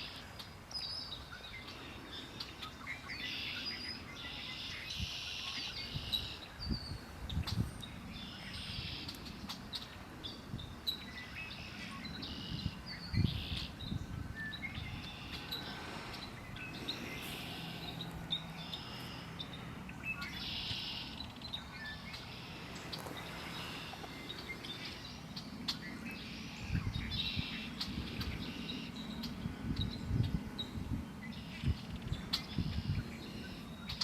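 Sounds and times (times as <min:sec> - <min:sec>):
wild birds singing and calling: 0:00.0 - 0:34.0.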